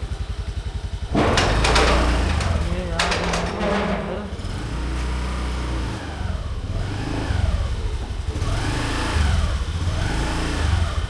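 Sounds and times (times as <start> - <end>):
vehicle engine revving: 4.4 - 11.0.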